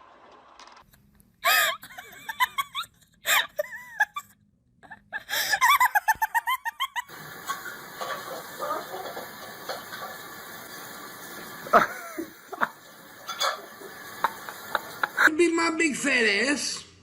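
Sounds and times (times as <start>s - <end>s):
high-pitched laughter: 1.4s - 7.6s, 11.7s - 12.8s.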